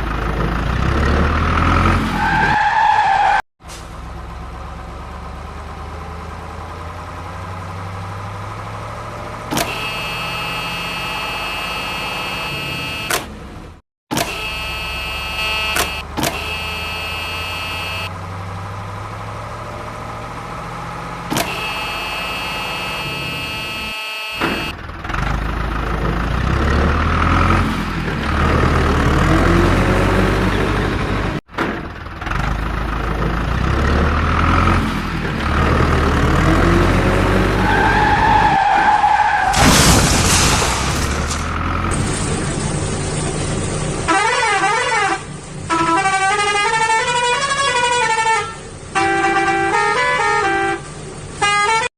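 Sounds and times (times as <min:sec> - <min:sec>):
horns honking: 0:09.5 - 0:13.4, 0:14.1 - 0:18.2, 0:21.3 - 0:24.8, 0:44.0 - 0:51.9
loud crash: 0:39.4 - 0:43.6.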